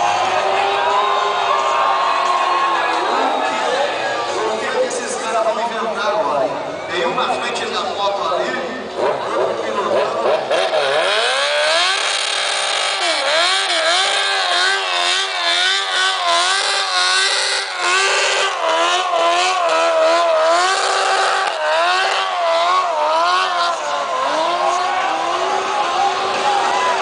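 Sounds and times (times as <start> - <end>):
truck engine revving: 8.7 - 27.0.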